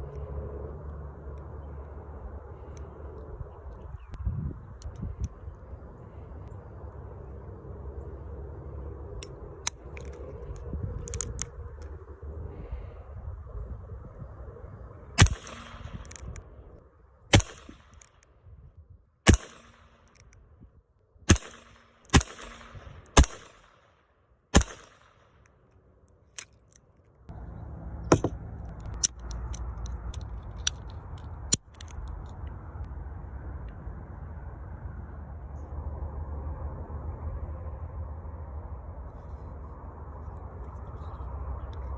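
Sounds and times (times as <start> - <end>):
low background rumble: 0.0 - 41.9
handgun shots echoing: 15.2 - 16.2, 17.3 - 18.1, 19.3 - 20.0, 21.3 - 23.8, 24.5 - 25.2.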